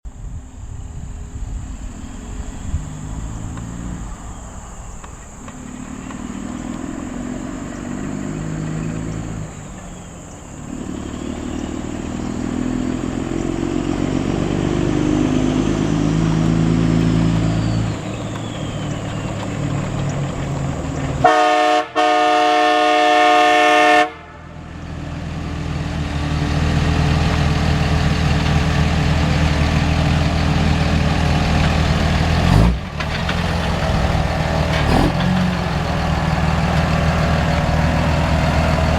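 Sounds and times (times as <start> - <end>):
pickup engine revving: 0.6 - 38.9
train horn blasts: 21.2 - 24.7.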